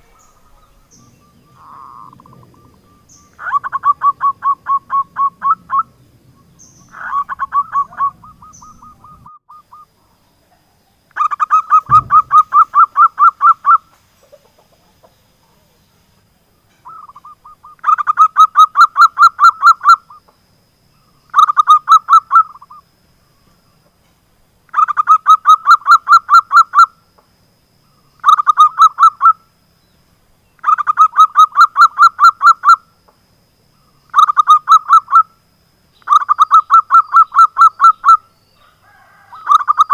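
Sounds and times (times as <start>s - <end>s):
dove cooing: 0.0s - 6.0s, 6.6s - 10.0s, 11.2s - 13.8s, 36.1s - 39.9s
low thump: 11.8s - 12.6s.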